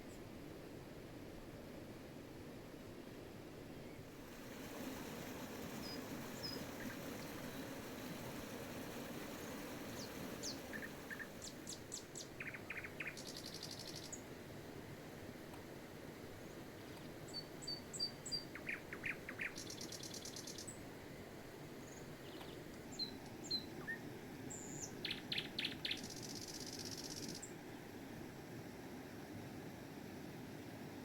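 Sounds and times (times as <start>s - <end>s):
small birds chirping: 4.5s - 14.3s, 16.4s - 20.8s, 21.8s - 27.5s
rapid high bird trills: 5.8s - 14.2s.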